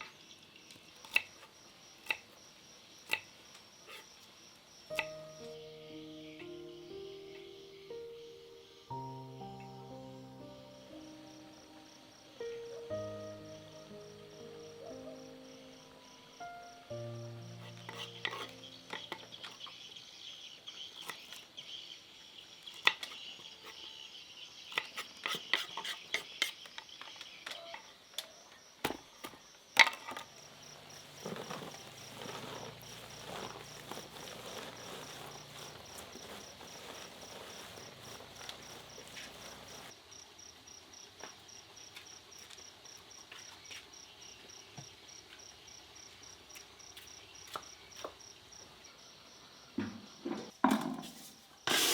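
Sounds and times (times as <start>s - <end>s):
insects chirping: 0.0s - 50.3s.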